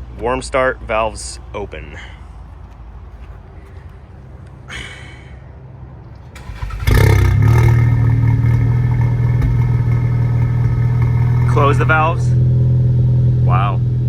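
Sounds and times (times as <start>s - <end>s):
car engine starting and idling: 6.3s - 14.0s.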